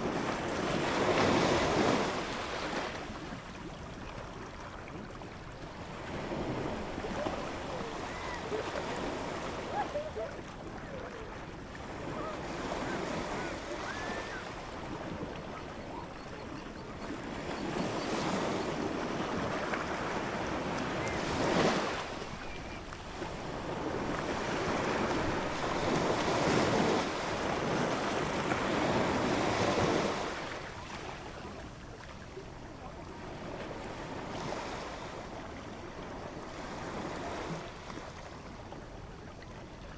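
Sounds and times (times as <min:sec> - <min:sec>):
ocean waves breaking: 0:05.2 - 0:31.3
roar of surf: 0:06.0 - 0:15.0.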